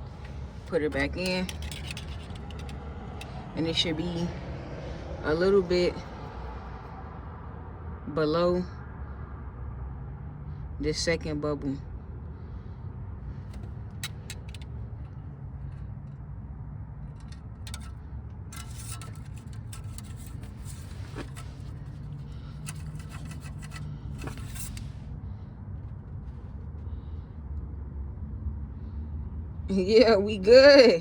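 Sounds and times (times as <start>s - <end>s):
metal dipstick clicking and scraping: 0.0s - 4.2s, 13.4s - 15.8s, 17.0s - 25.0s
steady low rumble: 0.0s - 31.0s.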